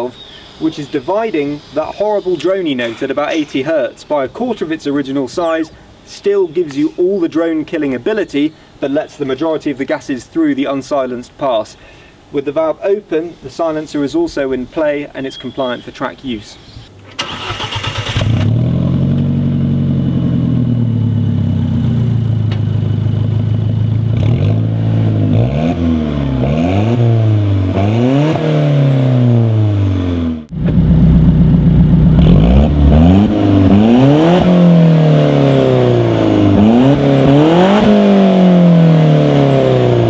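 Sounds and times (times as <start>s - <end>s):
car engine idling and revving: 17.3s - 40.0s.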